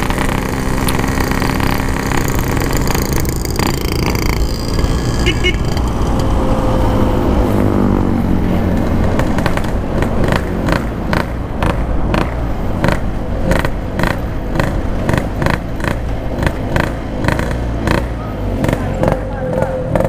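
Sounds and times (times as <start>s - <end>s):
motorcycle engine rumble: 0.0s - 20.0s
road noise: 0.0s - 20.0s.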